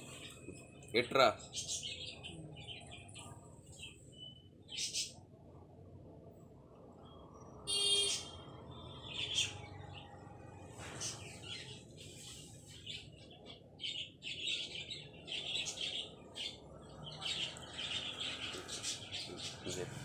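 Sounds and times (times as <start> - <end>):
small birds chirping: 0.0 - 5.7, 6.7 - 20.0.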